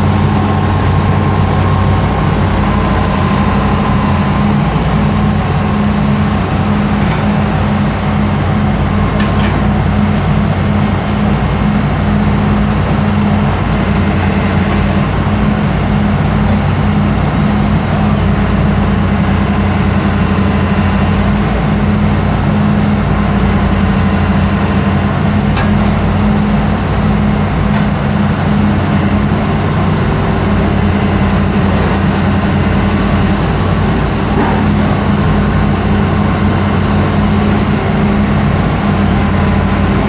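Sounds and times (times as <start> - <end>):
diesel engine humming: 0.0 - 40.0.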